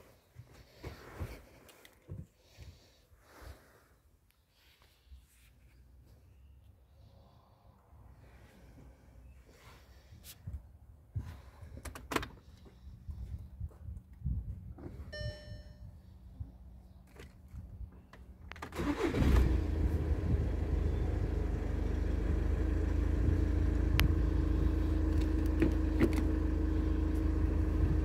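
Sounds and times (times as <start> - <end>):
car engine starting and idling: 18.5 - 28.0.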